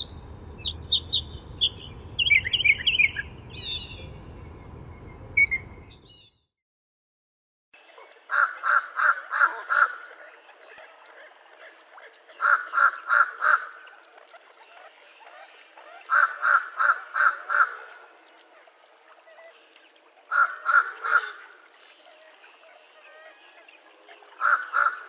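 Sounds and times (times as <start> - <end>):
crow calling: 8.3 - 10.1, 12.4 - 13.8, 16.0 - 18.0, 20.3 - 21.6, 24.4 - 25.0.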